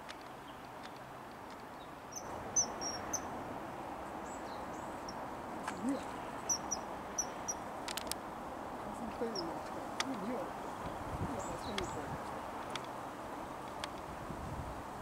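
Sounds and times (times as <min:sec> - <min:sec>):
outdoor background noise: 0:00.0 - 0:15.0
small bird chirping: 0:01.7 - 0:03.3, 0:04.2 - 0:08.1, 0:08.8 - 0:12.1.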